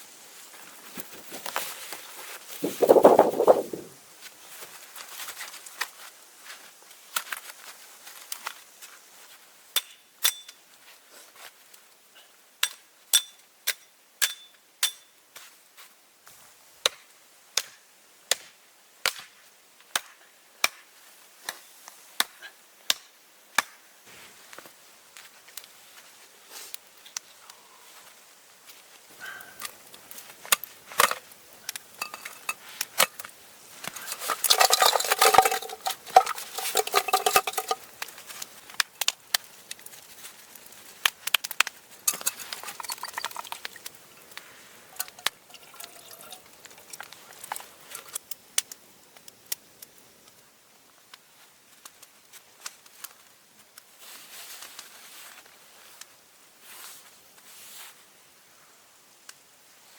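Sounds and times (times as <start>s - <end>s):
metal cookware clinking and scraping: 32.0s - 33.2s, 34.0s - 38.0s, 42.1s - 43.8s, 45.0s - 46.5s.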